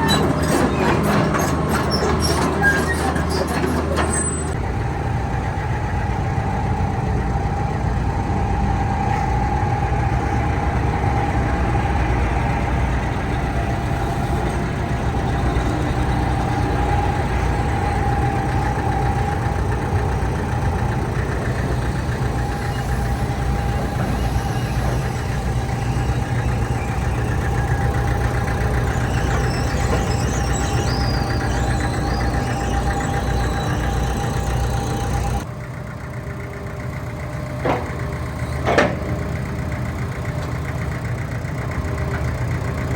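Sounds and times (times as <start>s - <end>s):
diesel engine idling: 0.0s - 42.9s
steady whine: 4.6s - 35.5s.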